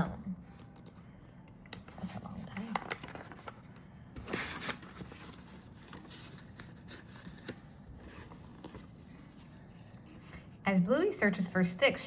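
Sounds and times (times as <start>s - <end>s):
paper page rustling: 1.9s - 10.4s.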